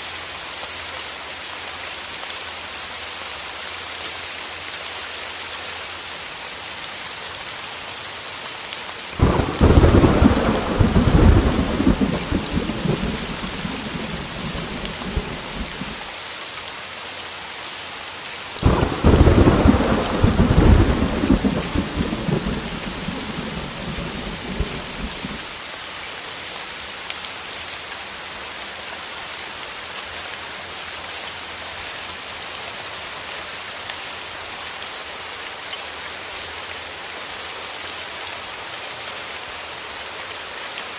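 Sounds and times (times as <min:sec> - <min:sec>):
heavy rain: 0:00.0 - 0:40.9
thunder peals: 0:09.2 - 0:16.0, 0:18.6 - 0:25.4.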